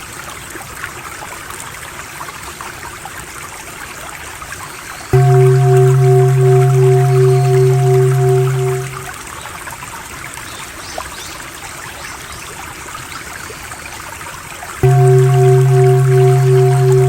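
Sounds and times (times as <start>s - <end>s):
water trickling: 5.0s - 9.3s, 14.8s - 17.0s
water dripping: 5.1s - 9.2s, 14.8s - 17.0s
low drone with pulsing tone: 5.2s - 9.2s, 14.8s - 17.0s.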